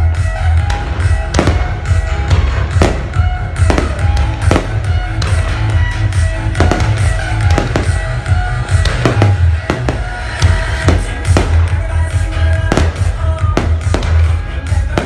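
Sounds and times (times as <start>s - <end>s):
loud bass-heavy music: 0.0s - 15.0s
fireworks bangs: 1.0s - 15.0s.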